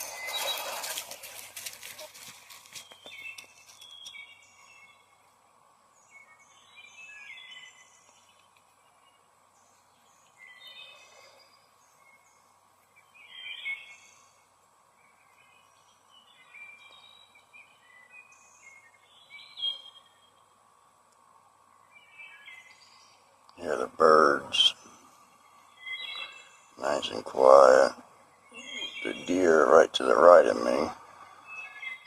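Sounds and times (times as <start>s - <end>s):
faint background hum: 0.0s - 32.0s
songbirds chirping: 0.0s - 32.0s.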